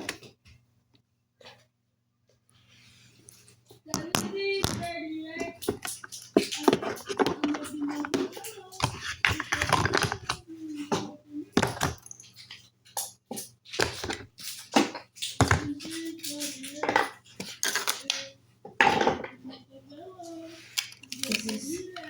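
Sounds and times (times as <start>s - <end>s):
child's soft voice: 3.9s - 5.8s, 6.4s - 12.0s, 15.4s - 17.2s, 19.2s - 22.0s
small hard objects clicking: 5.6s - 10.4s, 20.8s - 22.0s.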